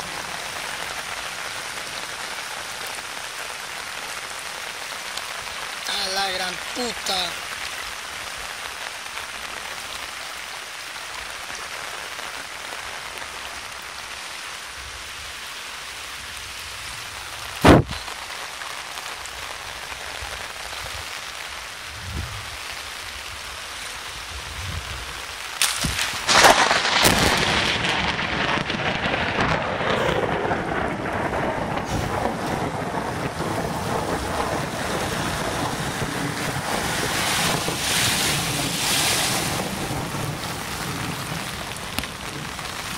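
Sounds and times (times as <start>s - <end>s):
heavy rain falling: 0.0s - 42.9s
sharp thunder crack: 17.6s - 18.0s, 25.6s - 38.8s
rumble of thunder: 25.8s - 38.7s.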